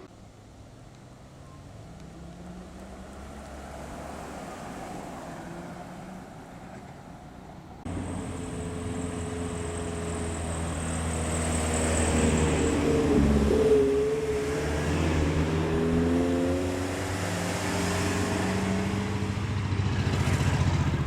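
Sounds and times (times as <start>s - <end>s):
car engine approaching: 0.0s - 21.0s
car engines pulling away: 0.0s - 21.0s.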